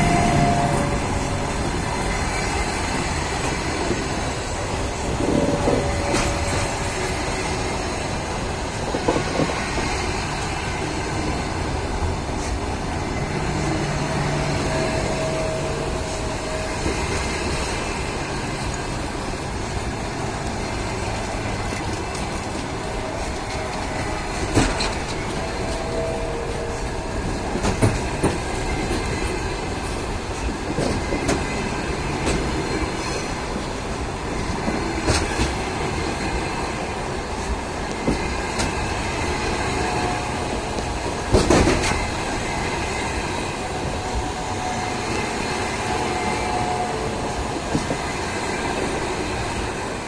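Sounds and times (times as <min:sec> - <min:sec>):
wheels clacking over rail joints: 0:00.0 - 0:46.0
train rolling rumble: 0:00.0 - 0:50.0.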